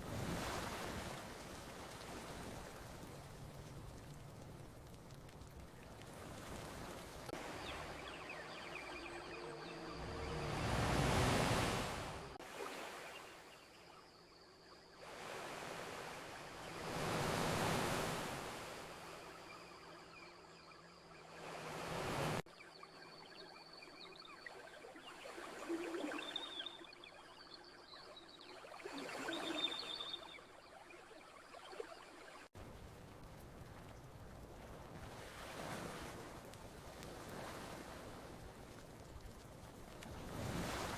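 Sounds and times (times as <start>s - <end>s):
ocean waves on beach: 0.0s - 40.9s
faint high chirps: 7.4s - 11.4s, 22.6s - 32.4s.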